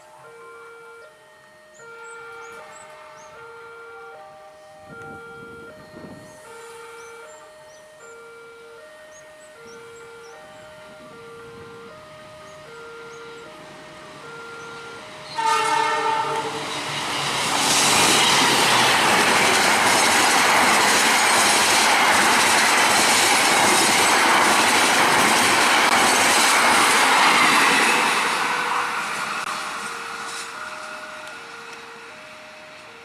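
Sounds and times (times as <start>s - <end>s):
locomotive horn: 0.0s - 1.2s, 1.8s - 5.8s, 14.2s - 16.9s
crossing signal two-tone chime: 0.0s - 21.6s, 27.1s - 33.0s
train wheels on rails: 1.5s - 33.0s.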